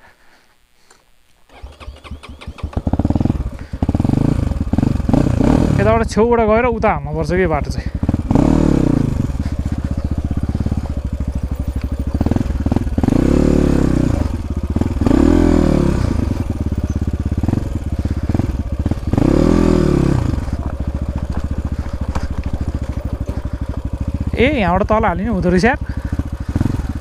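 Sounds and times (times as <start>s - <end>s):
dirt bike engine revving: 1.5s - 27.0s.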